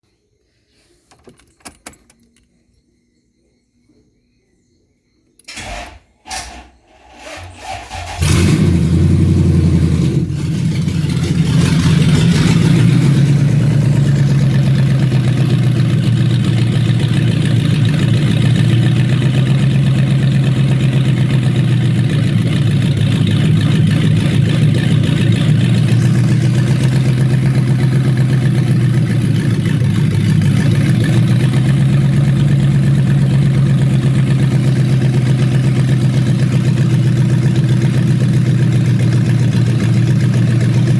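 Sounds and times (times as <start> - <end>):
car engine cranking and idling: 5.4 - 40.9.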